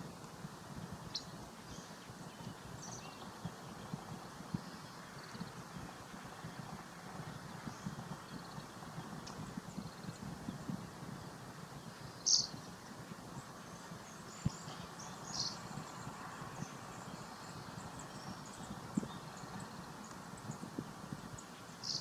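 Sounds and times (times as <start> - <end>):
outdoor background noise: 0.0 - 22.0
faint bird chirps: 11.8 - 12.6, 21.7 - 22.0.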